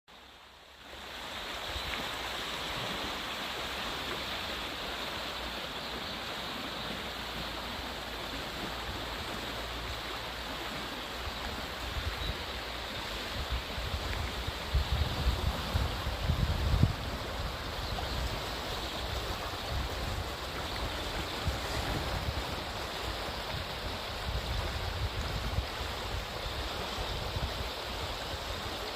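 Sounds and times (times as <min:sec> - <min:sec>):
river water rushing over stones: 0:00.1 - 0:28.9
wind rumble on microphone: 0:06.8 - 0:28.9.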